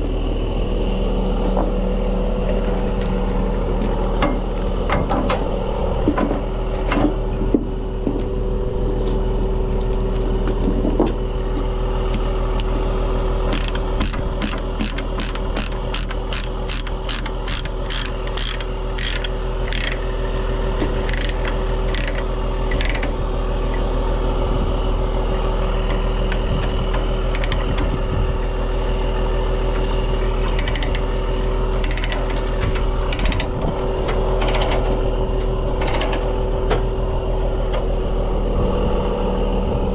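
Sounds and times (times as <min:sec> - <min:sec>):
truck engine droning: 0:00.0 - 0:39.9
regular clicks: 0:13.5 - 0:23.1, 0:30.4 - 0:31.0, 0:33.1 - 0:33.5.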